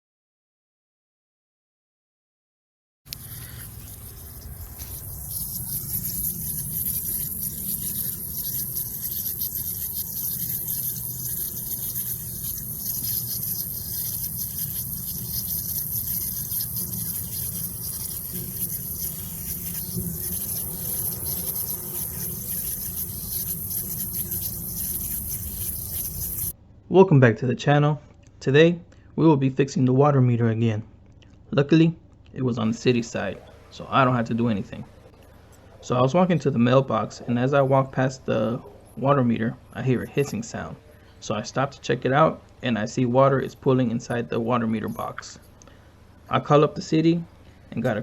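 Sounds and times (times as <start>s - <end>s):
water spraying under pressure: 3.1s - 26.5s.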